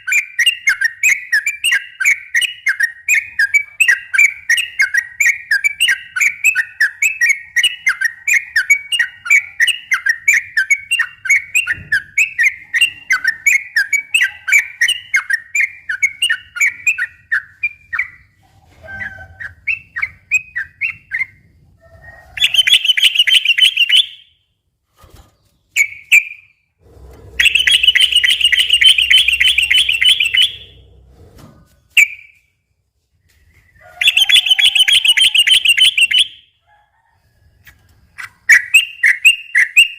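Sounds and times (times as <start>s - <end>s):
bird rattling trills: 27.0s - 30.9s
bird whistled notes: 27.3s - 30.8s, 33.5s - 36.4s.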